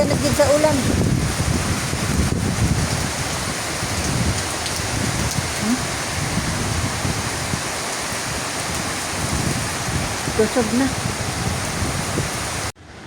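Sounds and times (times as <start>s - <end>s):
heavy rain pouring: 0.0s - 12.8s
strong wind rumble: 0.0s - 12.8s.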